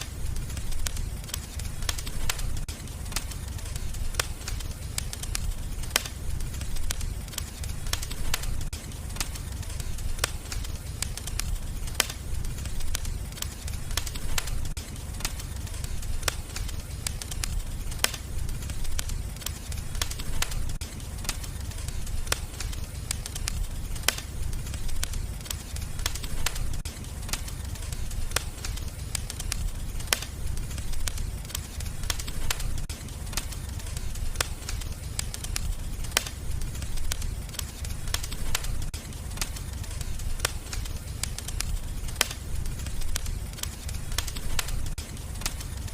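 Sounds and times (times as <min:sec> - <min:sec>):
fire crackling and popping: 0:00.0 - 0:45.9
low rumble of flames: 0:00.0 - 0:45.9.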